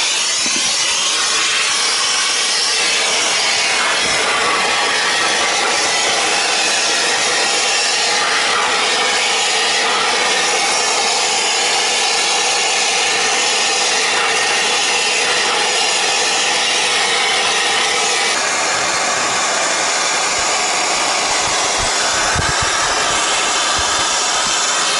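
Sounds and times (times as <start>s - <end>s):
torch hissing loudly: 0.0s - 24.9s.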